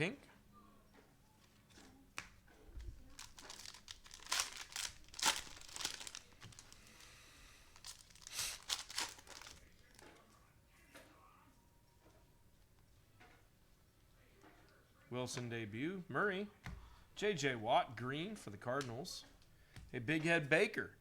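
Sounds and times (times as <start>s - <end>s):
cellophane crinkling and tearing: 2.7s - 10.0s.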